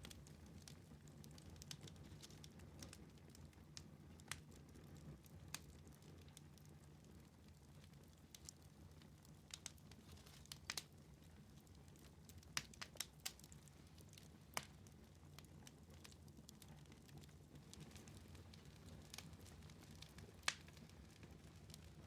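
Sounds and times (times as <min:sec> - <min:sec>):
wood fire crackling: 0:00.0 - 0:22.0
sharp pops from fire: 0:09.5 - 0:10.9, 0:12.0 - 0:16.2, 0:16.9 - 0:21.0.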